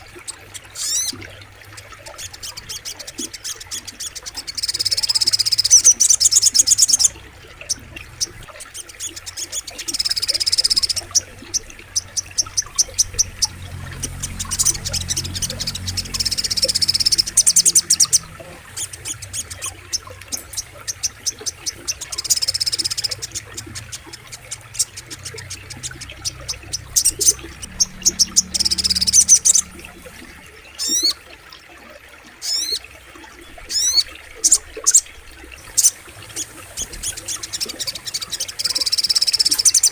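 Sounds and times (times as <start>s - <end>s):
flowing water rushing: 0.0s - 39.9s
bird ticking chip notes: 2.4s - 31.2s.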